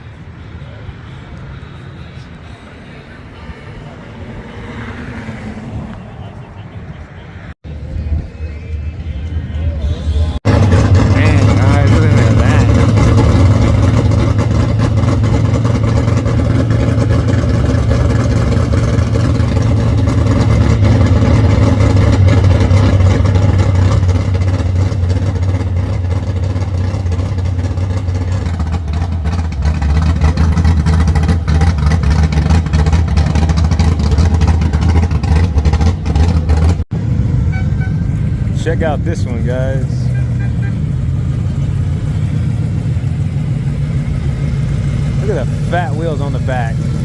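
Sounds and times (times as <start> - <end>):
car engine running: 10.2 - 47.0.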